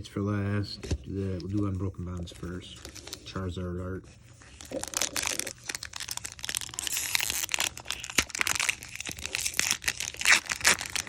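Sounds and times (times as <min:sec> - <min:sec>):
foil wrapper crinkling and tearing: 0:02.3 - 0:03.4, 0:04.4 - 0:11.0.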